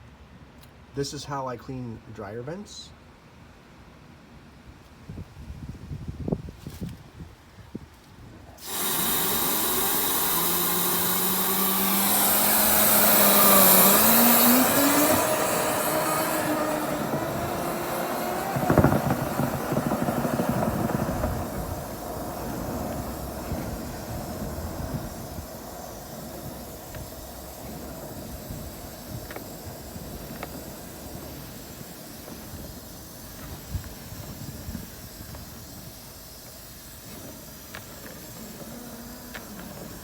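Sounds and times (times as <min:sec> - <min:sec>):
air rushing over motor hum: 0:05.0 - 0:40.0.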